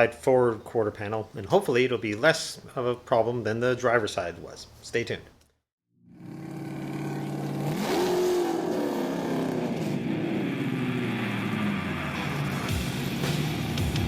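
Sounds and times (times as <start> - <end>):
car engine revving: 6.1 - 14.0.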